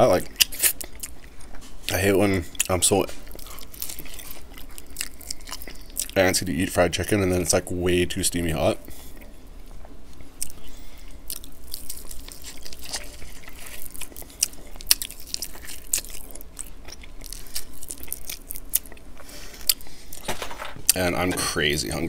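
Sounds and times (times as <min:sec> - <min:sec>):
crackling crust clicks: 0:00.0 - 0:22.0
chewing and biting fried chicken: 0:00.3 - 0:01.6, 0:02.5 - 0:06.2, 0:10.3 - 0:20.2.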